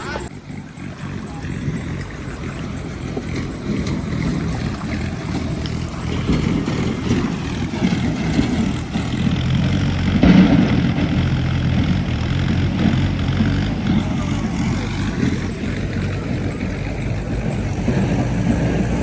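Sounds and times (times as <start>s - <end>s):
heavy diesel engines straining: 0.0s - 19.0s.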